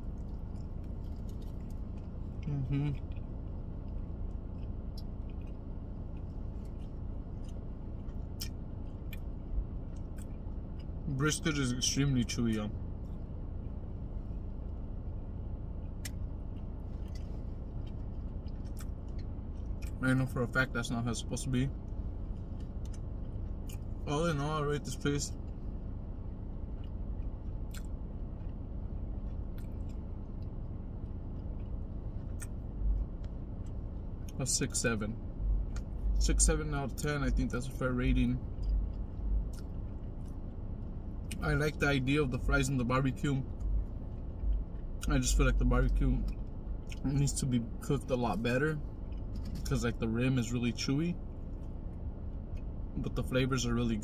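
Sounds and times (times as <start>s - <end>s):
person chewing: 0.0s - 9.3s, 15.8s - 20.0s, 22.2s - 24.0s, 26.7s - 34.4s, 38.4s - 41.8s, 45.9s - 47.1s
low car cabin hum: 0.0s - 54.0s.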